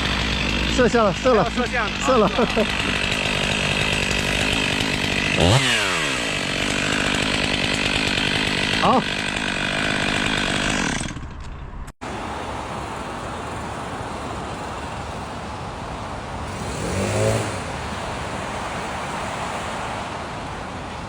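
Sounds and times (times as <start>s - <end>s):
chainsaw engine: 0.0s - 21.0s
outdoor road noise: 0.0s - 21.0s
vehicle passing: 12.0s - 21.0s.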